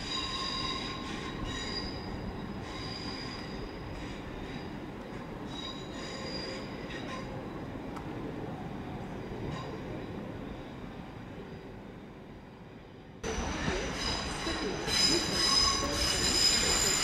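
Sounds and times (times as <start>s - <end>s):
train rumbling over points: 13.2s - 17.0s
wheels squealing: 13.3s - 17.0s.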